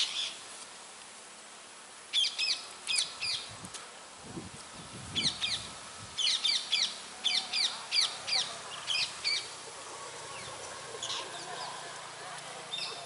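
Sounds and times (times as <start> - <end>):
bird chirping: 2.1 - 3.5, 5.1 - 13.0.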